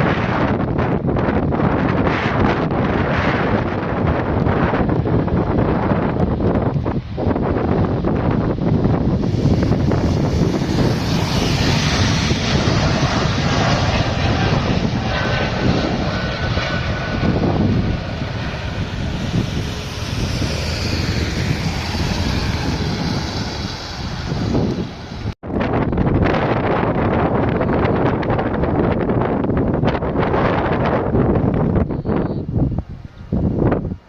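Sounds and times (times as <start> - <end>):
jet engines at takeoff power: 0.0 - 34.0
faint rising whine: 9.0 - 25.4.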